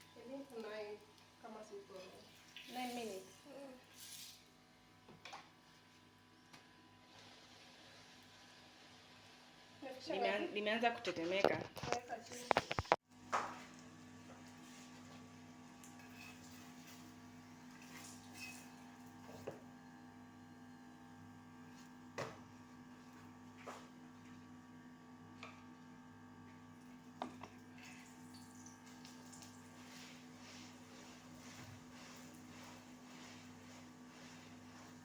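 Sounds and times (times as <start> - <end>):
faint clicks and knocks: 11.1 - 13.0.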